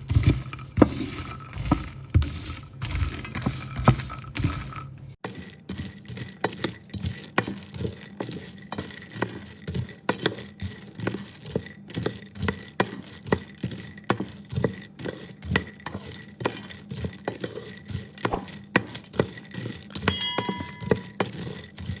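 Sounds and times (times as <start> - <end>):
nuts rattling and scraping in pan: 0.0 - 22.0
brief metallic ring: 20.1 - 21.2.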